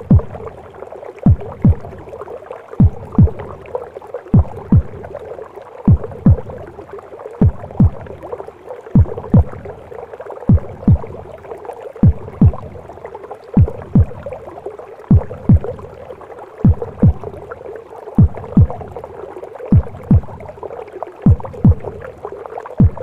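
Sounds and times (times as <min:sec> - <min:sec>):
heartbeat thumps: 0:00.0 - 0:00.6, 0:01.2 - 0:02.1, 0:02.8 - 0:03.6, 0:04.3 - 0:05.2, 0:05.9 - 0:06.7, 0:07.4 - 0:08.3, 0:09.0 - 0:09.9, 0:10.5 - 0:11.4, 0:12.0 - 0:12.9, 0:13.6 - 0:14.4, 0:15.0 - 0:16.0, 0:16.6 - 0:17.5, 0:18.2 - 0:19.1, 0:19.7 - 0:20.5, 0:21.2 - 0:22.1, 0:22.8 - 0:23.0
muffled whooshing womb noise: 0:00.0 - 0:23.0.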